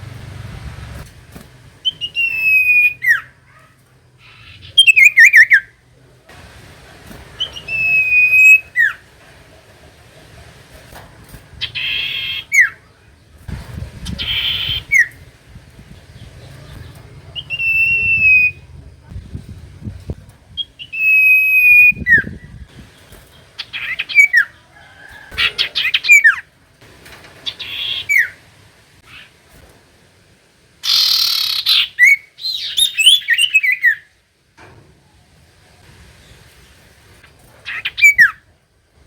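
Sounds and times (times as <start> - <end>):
bird whistled notes: 1.8 - 3.3, 4.3 - 5.7, 7.4 - 9.0, 17.3 - 18.7, 20.6 - 22.4, 30.9 - 34.0
bird harsh chattering: 1.8 - 5.8, 11.5 - 12.9, 14.0 - 15.2, 16.1 - 18.7, 23.4 - 24.6, 25.2 - 26.5, 27.4 - 28.4, 30.8 - 34.0, 37.6 - 38.4.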